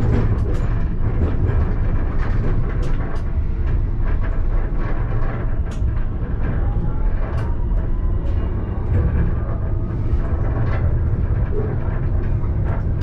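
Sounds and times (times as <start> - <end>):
tram rumbling on rails: 0.0 - 13.0.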